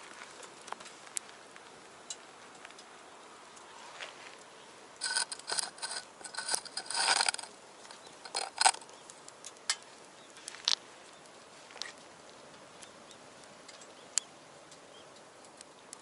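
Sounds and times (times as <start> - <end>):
metal clattering and scraping: 5.0 - 7.6, 8.2 - 8.8.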